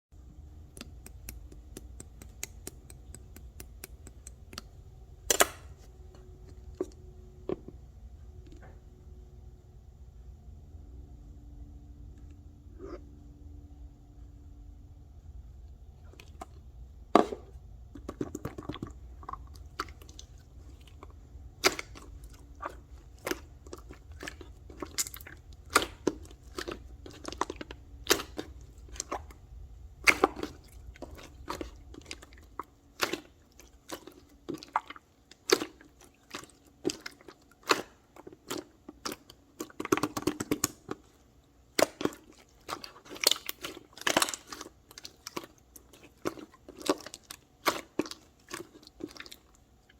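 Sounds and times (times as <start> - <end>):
low hum: 0.2 - 32.6.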